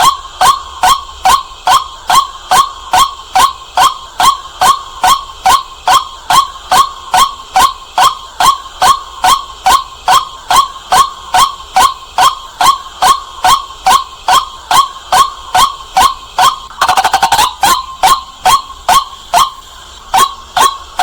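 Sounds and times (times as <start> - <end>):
waterhen calling: 16.0 - 21.0.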